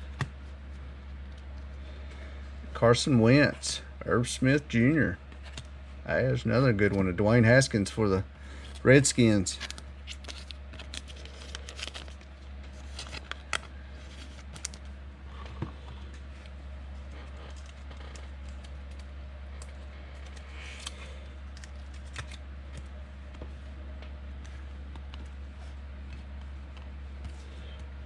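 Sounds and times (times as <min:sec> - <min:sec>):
low electrical hum: 0:00.0 - 0:28.0
cards clicking and wrappers crinkling: 0:08.5 - 0:27.9.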